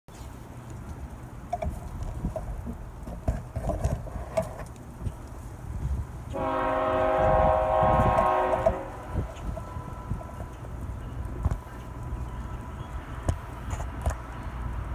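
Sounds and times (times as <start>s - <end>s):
locomotive air horn chord: 6.3s - 10.5s.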